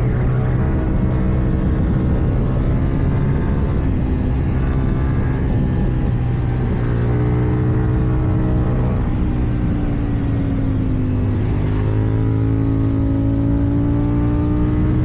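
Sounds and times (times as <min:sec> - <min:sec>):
motorcycle engine under way: 0:00.0 - 0:15.0.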